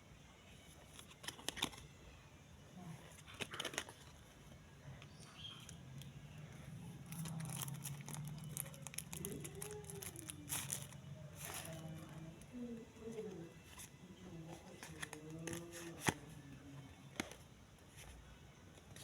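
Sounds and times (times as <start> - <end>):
wrapper crinkling and tearing: 7.1 - 12.3.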